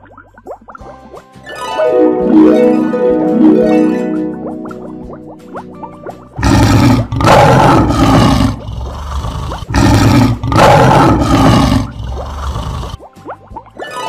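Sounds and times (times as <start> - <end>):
lion roaring: 6.4 - 13.0.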